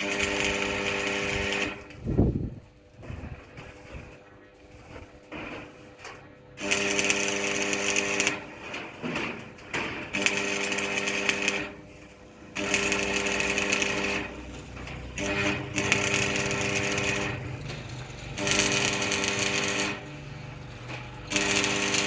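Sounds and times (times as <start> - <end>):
electric power tool running: 0.0 - 1.9, 6.6 - 8.5, 10.1 - 22.0.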